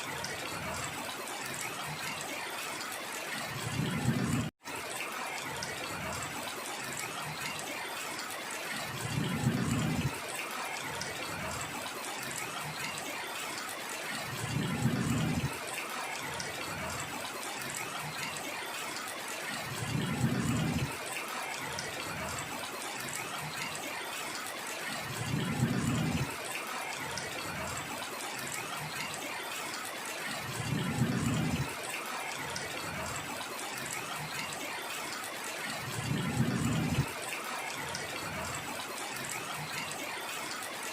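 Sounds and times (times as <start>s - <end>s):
heavy rain hissing: 18.2s - 40.6s.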